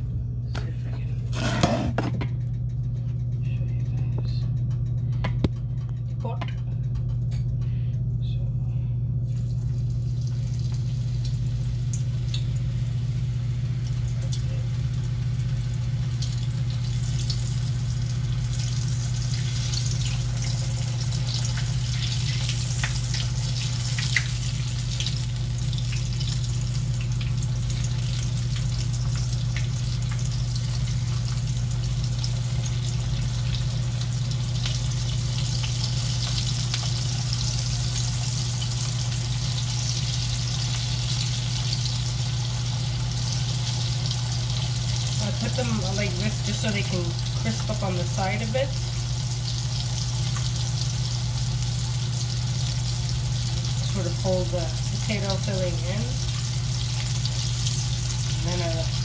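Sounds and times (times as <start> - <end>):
low hum: 0.0 - 59.0
food sizzling in hot oil: 9.4 - 59.0.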